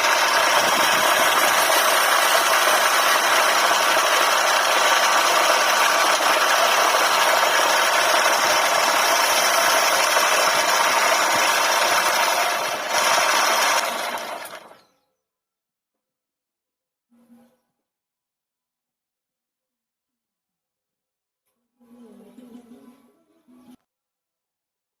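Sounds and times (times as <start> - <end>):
woodworking lathe grinding wood: 0.0 - 14.8.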